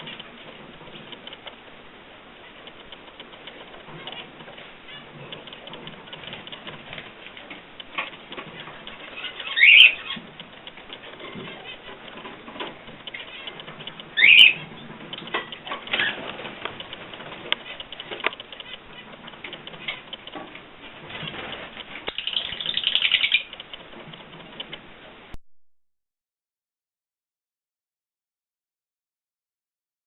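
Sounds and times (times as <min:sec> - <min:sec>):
rustling and small clicks: 0:00.0 - 0:25.4
wings fluttering: 0:02.4 - 0:24.8
faint bird calls: 0:09.1 - 0:10.3, 0:13.2 - 0:14.7
bird chirping loudly: 0:09.2 - 0:10.2, 0:14.2 - 0:14.6, 0:22.1 - 0:23.5.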